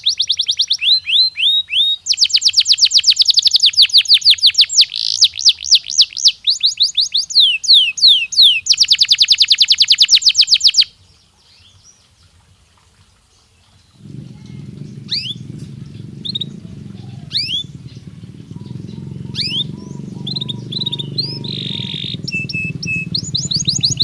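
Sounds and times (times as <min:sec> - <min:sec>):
canary singing: 0:14.0 - 0:24.0.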